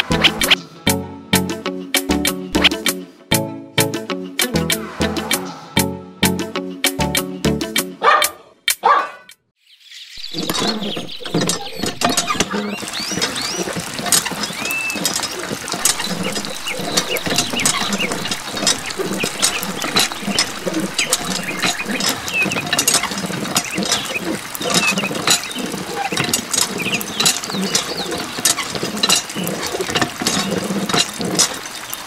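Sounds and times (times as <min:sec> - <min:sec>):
pump mechanism squeaks: 0:00.0 - 0:00.6, 0:10.2 - 0:32.0
water trickling: 0:10.2 - 0:32.0.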